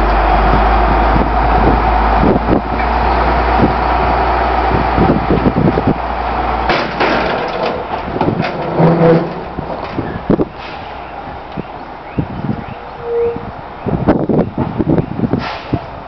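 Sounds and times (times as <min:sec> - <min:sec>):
garbage truck engine running: 0:00.0 - 0:16.0
knocks and clatter: 0:06.7 - 0:10.8.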